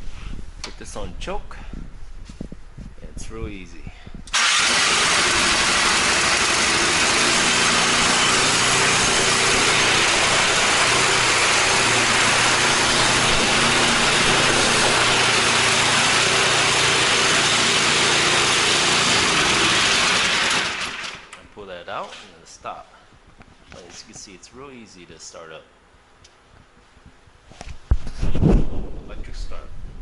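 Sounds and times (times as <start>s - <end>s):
snowblower engine running: 4.3s - 21.4s.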